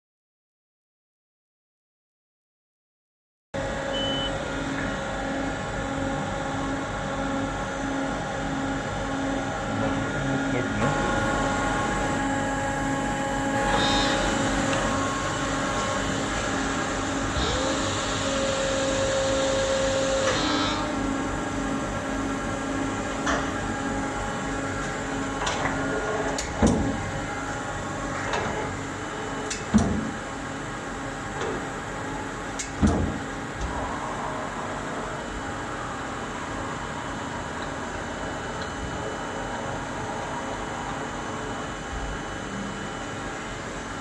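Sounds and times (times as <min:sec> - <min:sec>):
lathe machine hum: 0:03.6 - 0:29.5
machine whine: 0:03.6 - 0:44.0.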